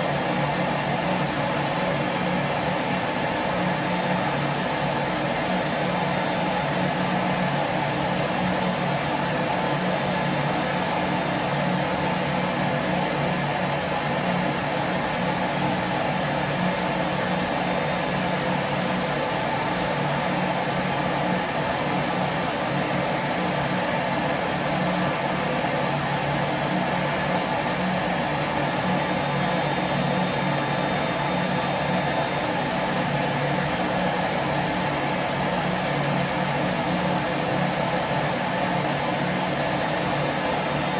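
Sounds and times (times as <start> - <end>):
vacuum cleaner running: 27.2 - 34.8.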